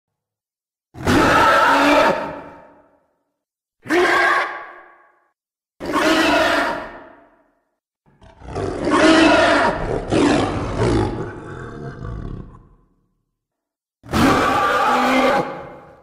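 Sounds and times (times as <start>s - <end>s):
creature cry: 1.0s - 2.7s, 3.8s - 4.9s, 5.8s - 7.3s, 8.4s - 12.6s, 14.1s - 16.0s
long loud creature roar: 8.2s - 12.8s, 14.1s - 15.9s.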